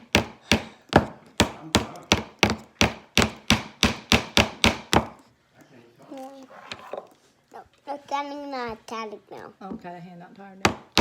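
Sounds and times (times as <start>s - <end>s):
hammer driving nail into wood: 0.0s - 5.2s.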